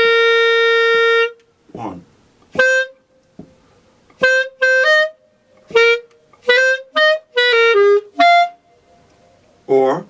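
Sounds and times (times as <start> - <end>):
solo clarinet playing: 0.0 - 1.5, 2.5 - 3.1, 4.2 - 9.1.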